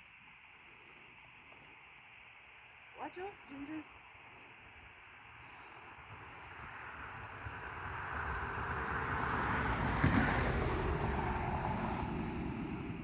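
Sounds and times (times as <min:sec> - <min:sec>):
vehicle passing by: 0:06.0 - 0:13.0.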